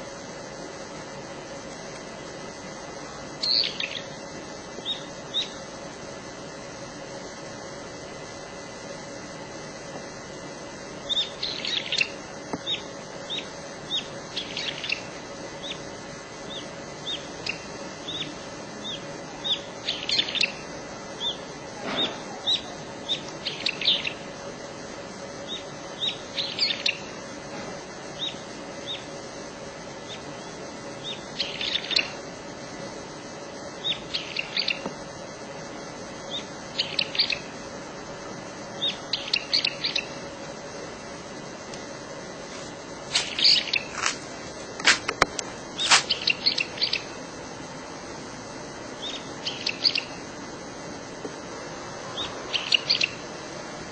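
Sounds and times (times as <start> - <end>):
faint steady hum: 0.0 - 53.9
songbird chirping: 3.4 - 5.6, 11.0 - 24.3, 25.4 - 27.2, 28.1 - 29.2, 30.0 - 32.2, 33.7 - 34.9, 36.2 - 37.6, 38.7 - 40.2, 43.1 - 44.0, 45.8 - 47.2, 49.0 - 50.3, 52.0 - 53.3.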